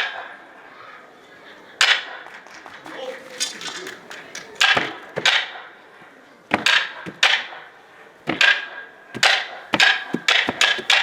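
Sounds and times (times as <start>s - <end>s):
wooden clappers clacking: 1.8s - 5.5s, 9.2s - 11.0s.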